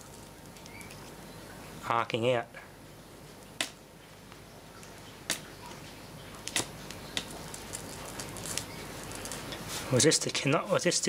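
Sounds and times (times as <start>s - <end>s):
electrical arcing snaps: 6.5s - 7.4s.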